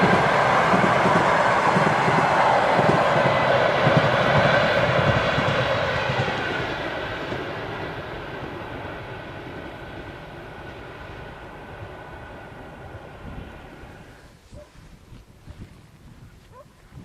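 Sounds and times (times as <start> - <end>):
train wheel and rail noise: 0.0 - 14.9.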